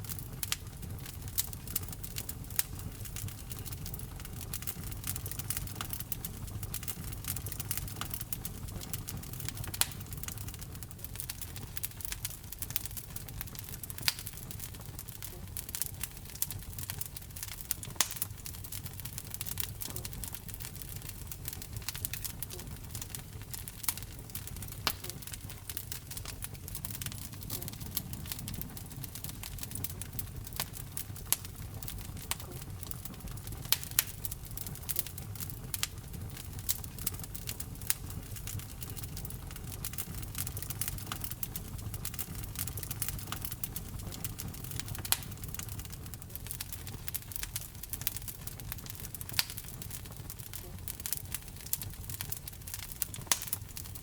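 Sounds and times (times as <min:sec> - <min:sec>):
fire popping: 0:00.0 - 0:54.0
flames rumbling: 0:00.0 - 0:54.0
wood fire crackling: 0:00.0 - 0:54.0.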